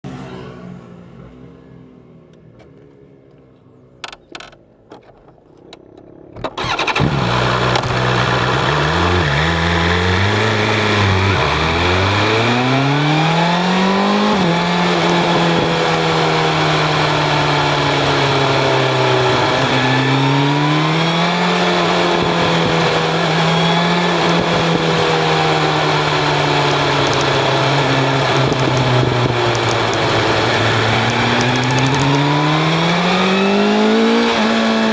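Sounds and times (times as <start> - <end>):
sport bike engine: 6.2 - 34.9
wind noise: 28.1 - 32.3.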